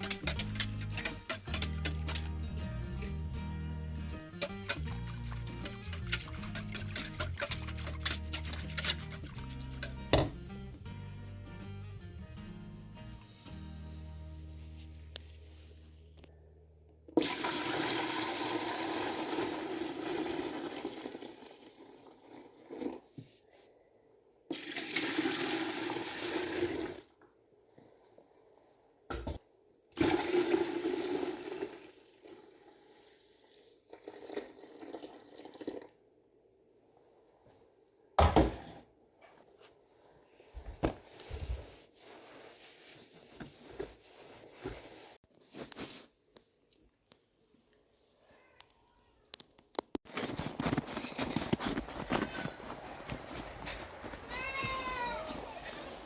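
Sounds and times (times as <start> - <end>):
handling noises: 0.0 - 2.5, 49.6 - 56.0.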